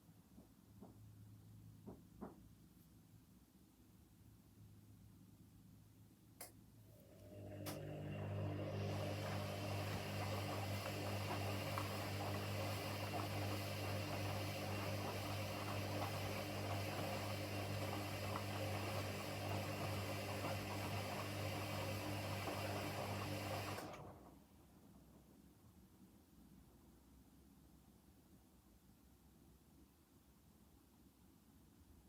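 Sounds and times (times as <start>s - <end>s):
washing machine humming: 6.9s - 24.8s.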